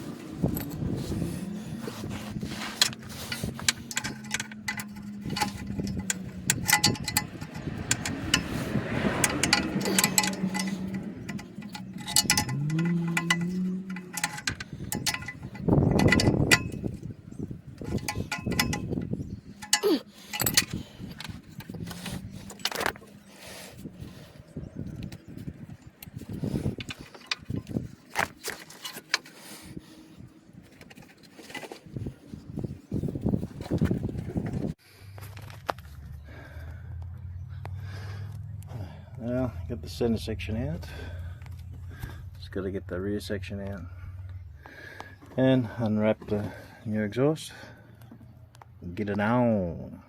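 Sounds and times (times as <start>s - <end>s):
metal tools clinking: 0.2s - 34.8s.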